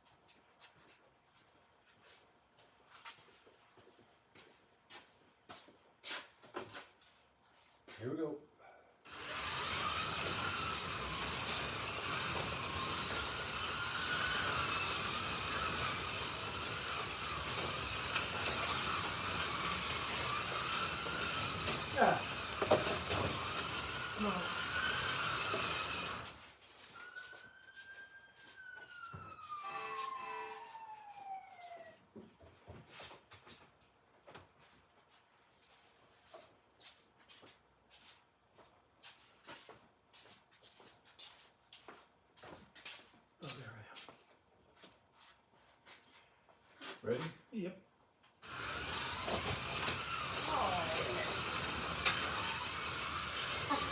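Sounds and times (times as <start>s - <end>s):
hiss: 9.1s - 26.3s, 48.5s - 53.9s
slot car motors whining: 9.1s - 26.5s, 48.4s - 53.9s.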